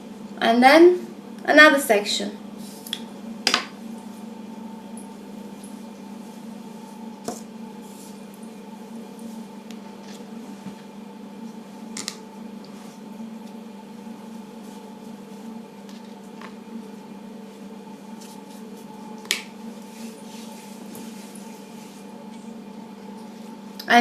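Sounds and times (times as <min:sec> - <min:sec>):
electrical hum: 0:00.0 - 0:24.0
brush rustling through wet hair: 0:05.5 - 0:11.8, 0:12.6 - 0:16.4, 0:17.4 - 0:23.6.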